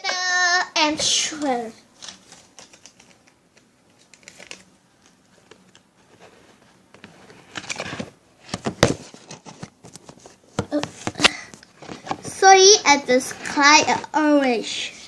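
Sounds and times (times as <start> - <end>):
sharp clicks and crackles: 2.0 - 5.8.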